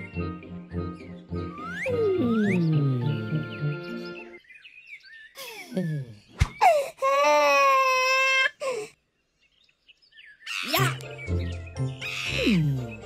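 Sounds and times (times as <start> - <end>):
music: 0.0 - 4.4, 10.8 - 13.0.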